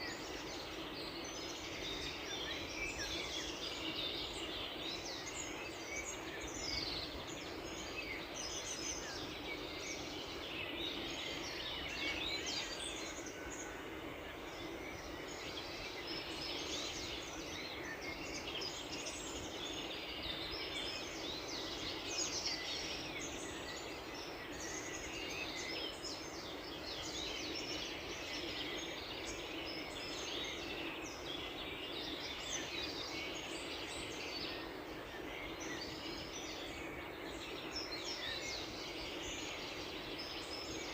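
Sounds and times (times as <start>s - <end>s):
small birds chirping: 0.0s - 40.9s
steady background hiss: 0.0s - 40.9s.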